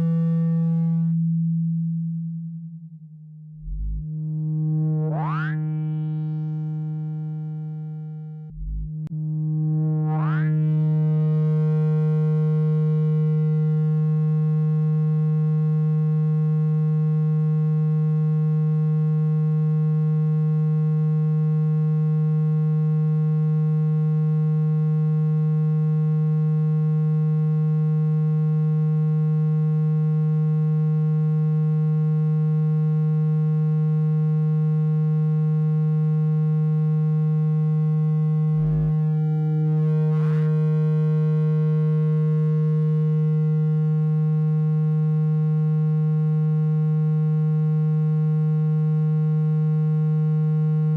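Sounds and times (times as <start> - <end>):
low-pitched electronic tone: 0.0 - 14.7, 36.8 - 44.7.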